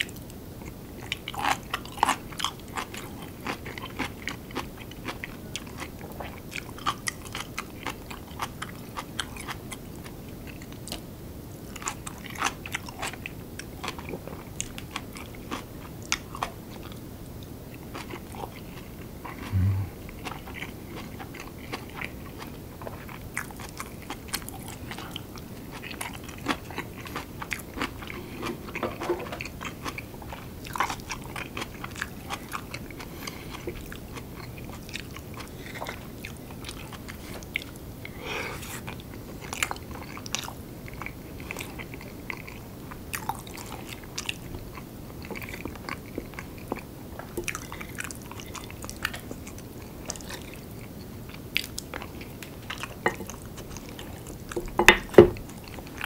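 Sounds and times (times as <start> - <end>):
wet mouth clicks: 19.5 - 20.0.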